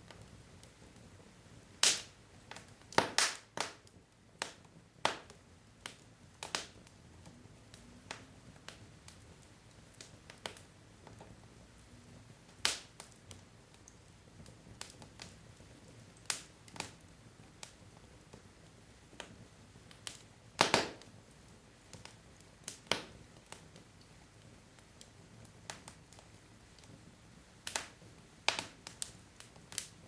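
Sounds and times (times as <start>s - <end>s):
low steady hiss: 0.0s - 30.0s
wood fire crackling: 0.0s - 30.0s
sharp pops and snaps: 1.8s - 11.4s, 12.5s - 18.5s, 19.1s - 21.2s, 21.8s - 30.0s.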